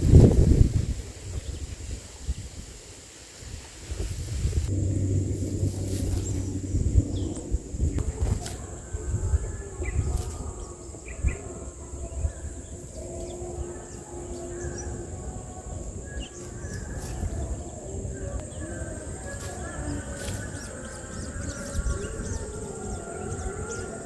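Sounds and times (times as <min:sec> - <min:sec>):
outdoor rumble: 0:03.8 - 0:24.0
high bird chirps: 0:09.8 - 0:24.0.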